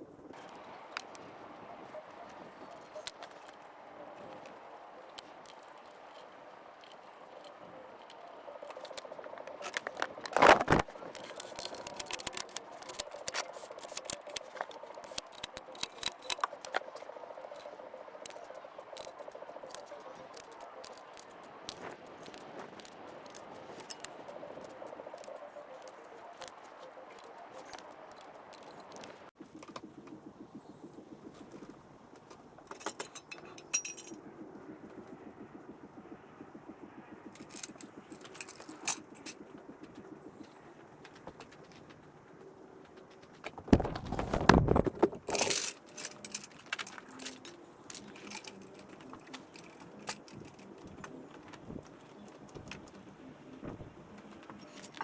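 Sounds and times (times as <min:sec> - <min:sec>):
tools and metal parts clinking: 0:05.2 - 0:17.7, 0:32.6 - 0:34.2, 0:37.4 - 0:39.4, 0:44.7 - 0:51.1.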